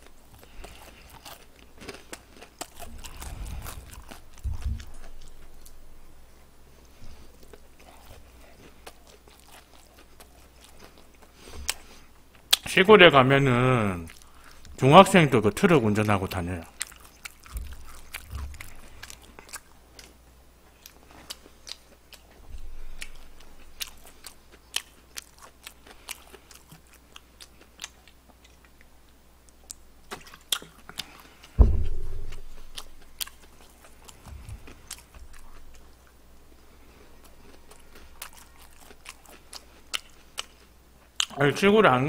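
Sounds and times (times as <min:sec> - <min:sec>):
chewing crunchy fried chicken: 0:00.0 - 0:12.8, 0:13.7 - 0:31.6, 0:32.3 - 0:41.7
loud thump: 0:31.6 - 0:33.0.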